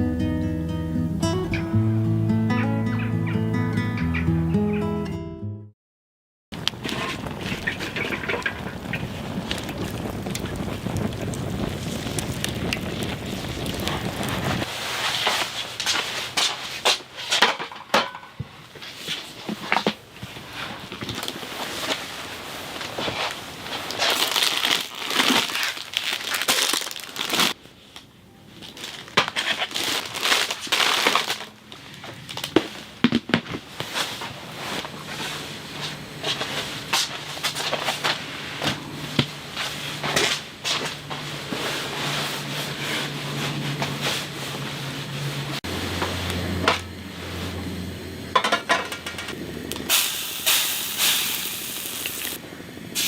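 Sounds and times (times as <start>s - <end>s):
crunching and crackling: 6.6s - 17.5s, 18.8s - 46.8s, 49.7s - 52.4s.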